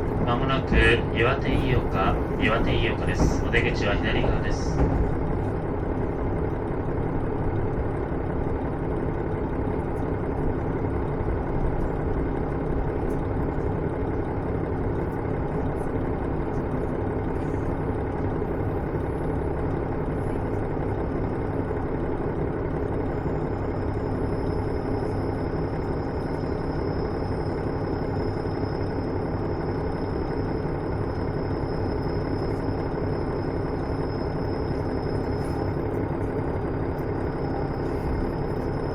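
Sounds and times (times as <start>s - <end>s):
diesel engine rumbling: 0.0s - 38.9s.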